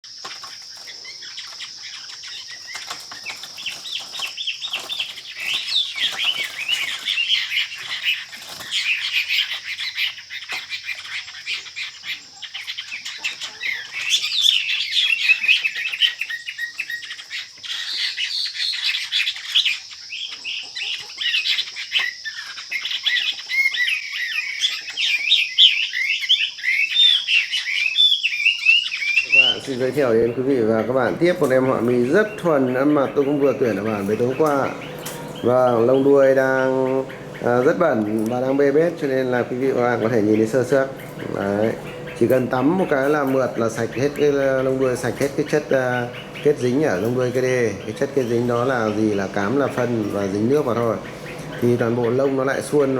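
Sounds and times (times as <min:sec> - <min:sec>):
bird singing whistled phrases: 0:22.8 - 0:52.9.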